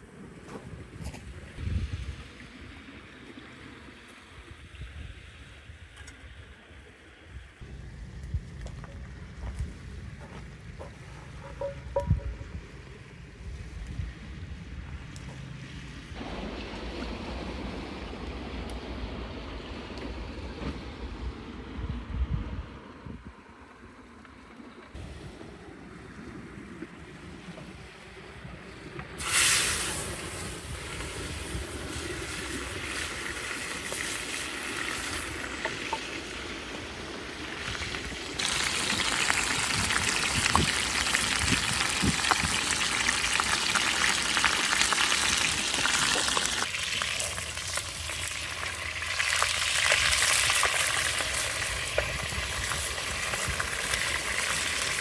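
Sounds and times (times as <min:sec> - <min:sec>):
food sizzling in a pan: 0:38.4 - 0:55.0.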